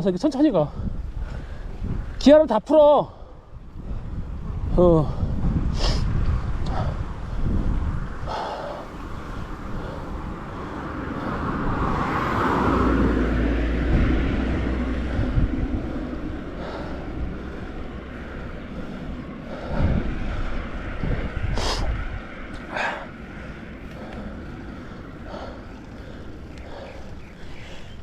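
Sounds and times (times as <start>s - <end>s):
wind on camera microphone: 0.0s - 24.5s
motor vehicle passing: 5.5s - 28.0s.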